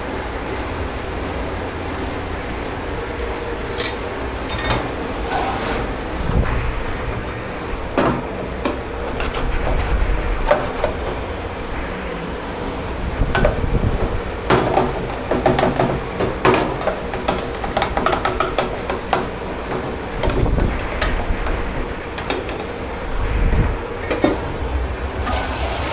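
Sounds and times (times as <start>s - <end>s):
steady hum: 0.0s - 25.9s
dishes and pots clattering: 3.7s - 5.1s, 14.5s - 22.8s, 24.0s - 24.5s.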